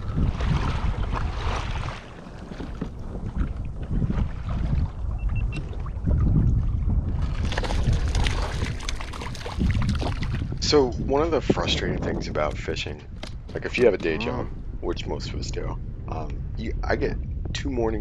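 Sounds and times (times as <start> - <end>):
water sloshing around a kayak: 0.0 - 10.6
wind buffeting the microphone: 0.0 - 18.0.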